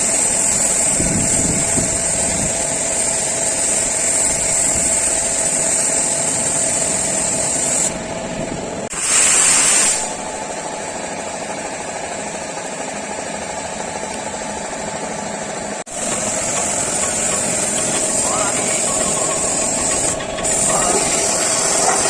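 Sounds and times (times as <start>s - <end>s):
paint spray gun hissing: 2.8s - 8.0s, 8.9s - 10.2s, 15.9s - 22.0s
machine hum: 15.8s - 22.0s.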